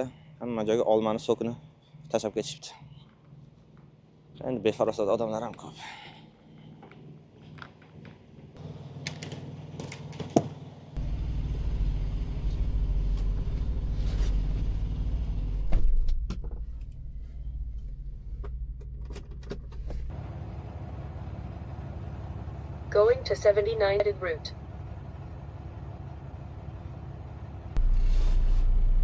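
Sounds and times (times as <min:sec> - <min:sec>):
diesel truck engine running: 0:08.6 - 0:15.7, 0:19.6 - 0:29.0
deep low rumble: 0:11.0 - 0:20.2, 0:24.5 - 0:29.0.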